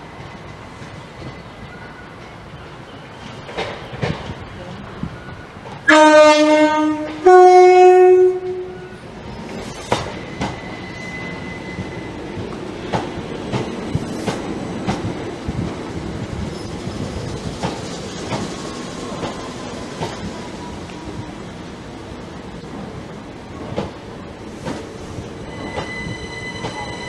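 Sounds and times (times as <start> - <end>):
train two-tone horn: 5.8 - 9.1, 25.5 - 27.0.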